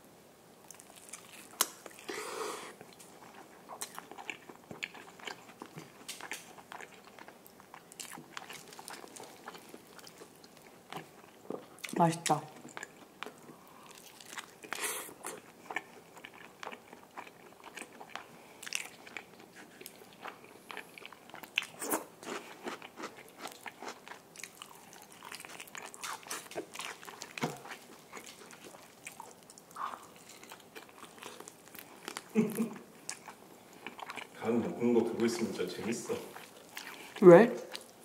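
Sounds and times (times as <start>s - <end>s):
chewing with crunches: 0.6s - 34.4s, 35.1s - 38.0s
biting into crispy crust: 2.8s - 11.6s, 12.7s - 34.4s.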